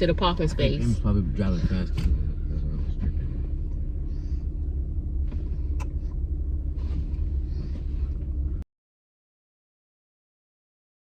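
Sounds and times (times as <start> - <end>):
car rumble from inside cabin: 0.0 - 8.7.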